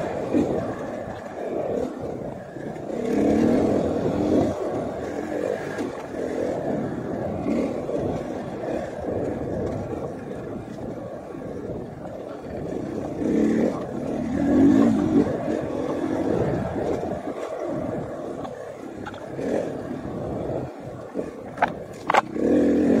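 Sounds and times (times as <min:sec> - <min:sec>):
motorcycle engine revving: 0:02.8 - 0:08.8, 0:12.7 - 0:17.2, 0:21.6 - 0:23.0.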